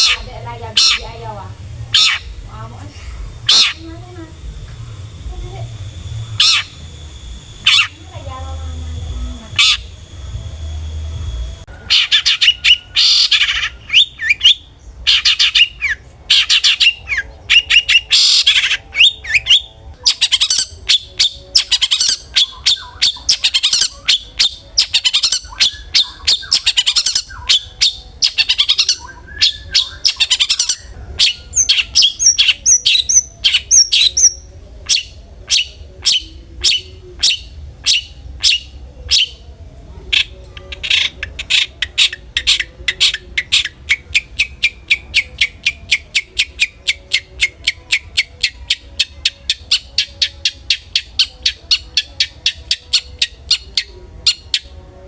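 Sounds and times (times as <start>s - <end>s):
shrike calling sharp notes: 0.0s - 39.5s
steady hum with thin tones: 0.0s - 55.0s.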